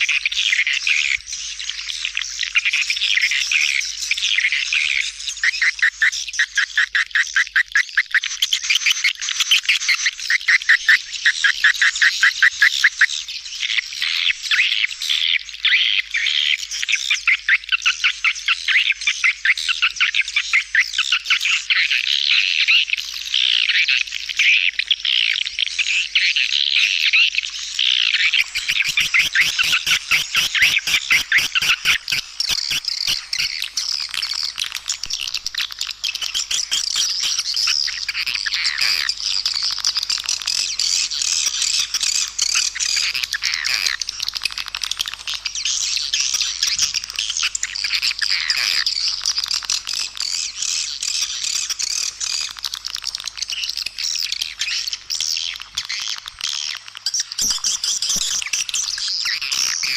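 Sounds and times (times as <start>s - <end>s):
swiftlets twittering: 28.2s - 40.0s
fast sharp clicks: 28.3s - 43.4s, 44.0s - 59.9s.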